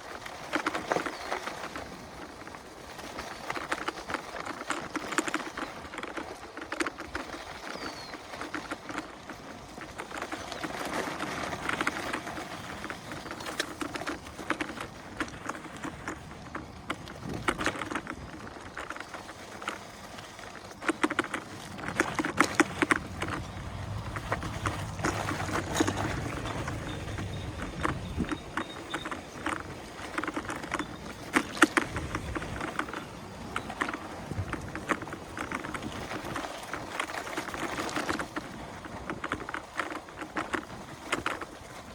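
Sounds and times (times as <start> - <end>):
grit and twigs clicking under wheel: 0.0 - 41.9
tyre noise on dirt trail: 0.0 - 41.9.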